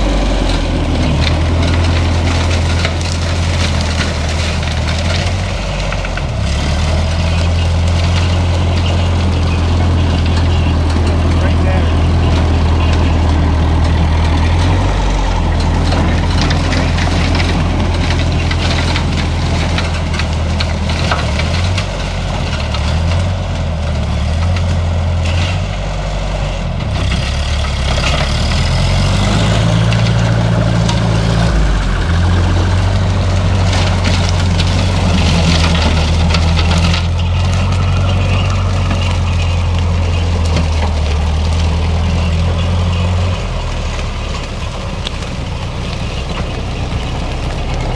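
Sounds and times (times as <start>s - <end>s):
tractor engine running: 0.0s - 47.9s.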